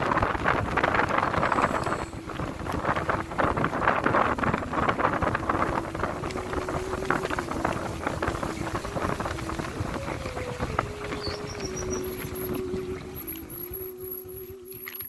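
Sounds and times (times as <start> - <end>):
wind buffeting microphone: 0.0 - 14.8
engine hum: 0.1 - 15.0.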